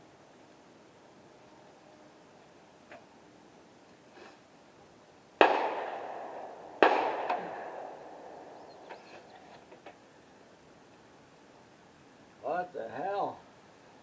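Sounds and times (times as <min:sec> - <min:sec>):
rifle shots echoing: 0:05.4 - 0:08.6.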